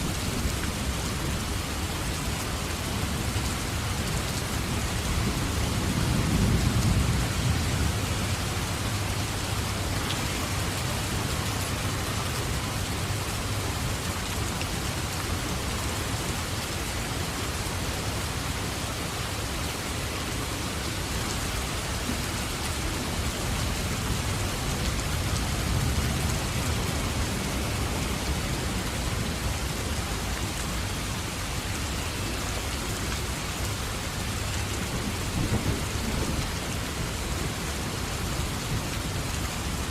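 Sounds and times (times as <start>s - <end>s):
heavy rain falling: 0.0s - 39.9s
thunder rumbling: 5.1s - 9.8s, 34.8s - 37.4s.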